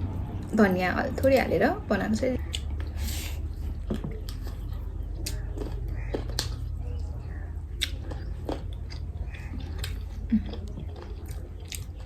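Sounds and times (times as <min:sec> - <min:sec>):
steady low hum: 0:00.0 - 0:12.0
person chewing: 0:02.5 - 0:12.0
wet clicks and smacks: 0:05.2 - 0:07.1, 0:07.8 - 0:12.0.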